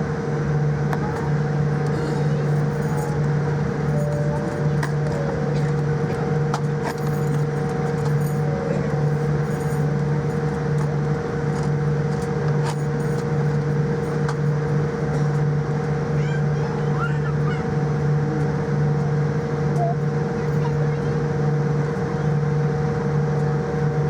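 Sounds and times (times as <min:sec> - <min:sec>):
aircraft engines idling: 0:00.0 - 0:24.0
steady higher tone: 0:02.0 - 0:10.4.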